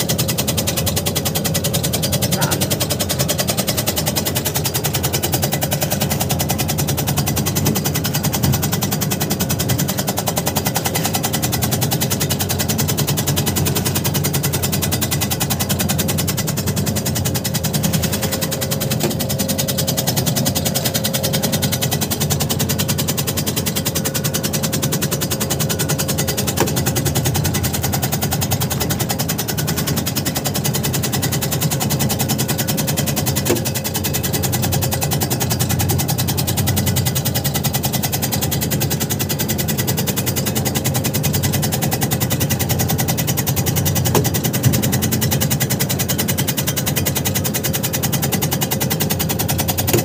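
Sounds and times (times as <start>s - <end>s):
shredding machine blade clatter: 49.4s - 50.0s.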